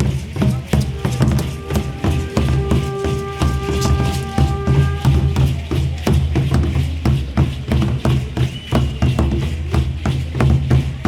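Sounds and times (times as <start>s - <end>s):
deep drum beating: 0.0s - 8.3s.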